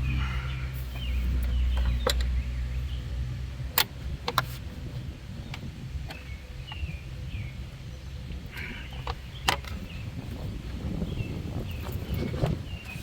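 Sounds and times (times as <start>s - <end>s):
low rumble: 0.0s - 12.9s.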